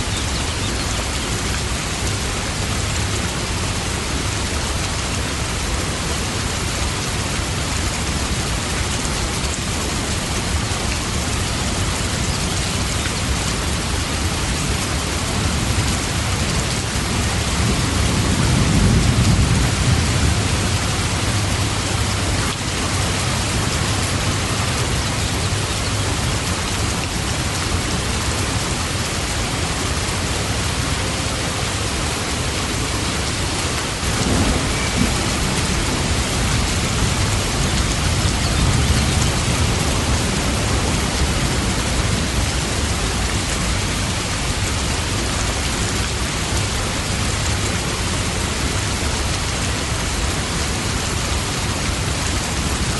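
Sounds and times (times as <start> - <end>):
steady rain: 0.0 - 52.9
thunder rumble: 17.1 - 25.5, 34.0 - 43.6.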